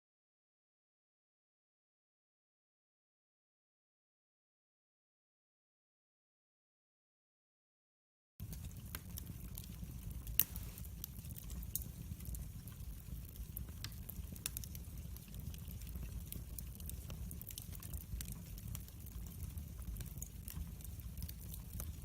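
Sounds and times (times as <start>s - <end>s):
sharp pops of fire: 8.4s - 22.0s
wood fire crackling: 8.4s - 22.0s.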